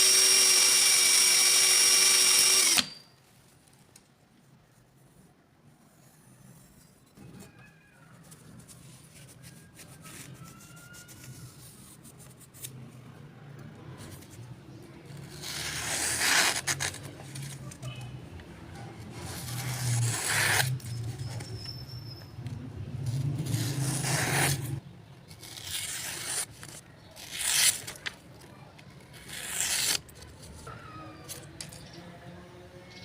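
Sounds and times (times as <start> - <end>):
small motor hum: 0.0 - 2.9
knife blade grinding: 2.6 - 3.2, 19.2 - 22.3, 23.2 - 24.8.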